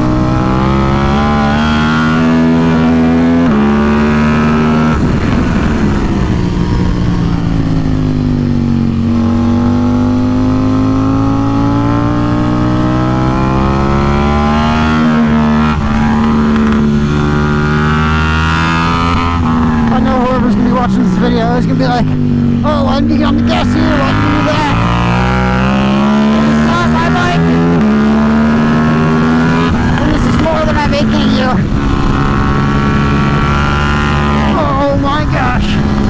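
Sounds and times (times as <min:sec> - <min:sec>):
motorcycle engine accelerating: 0:00.0 - 0:36.0.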